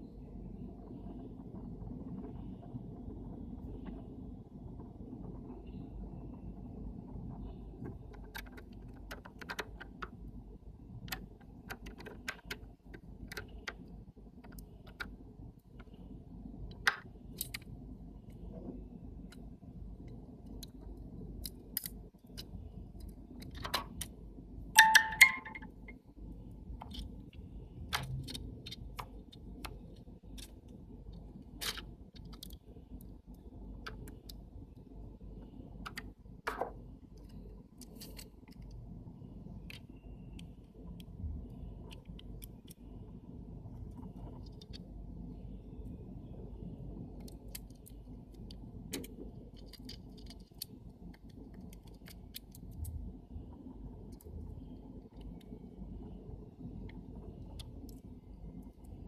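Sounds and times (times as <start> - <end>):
small metal parts clinking: 24.8 - 25.7.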